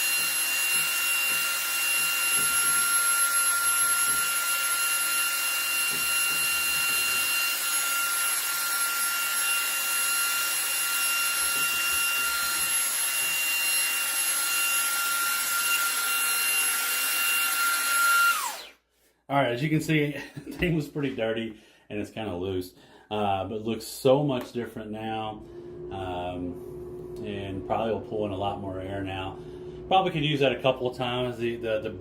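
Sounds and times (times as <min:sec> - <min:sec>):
handheld vacuum running: 0:00.0 - 0:18.8, 0:25.3 - 0:32.0.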